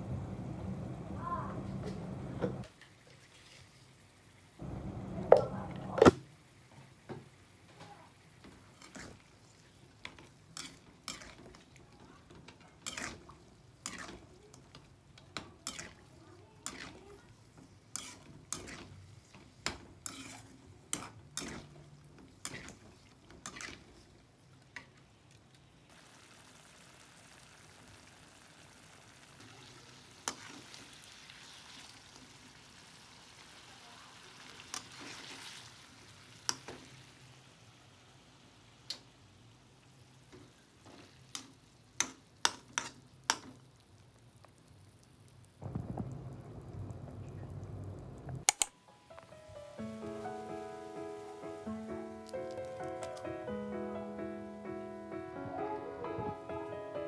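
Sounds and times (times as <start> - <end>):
frying sizzle: 0.0 - 57.0.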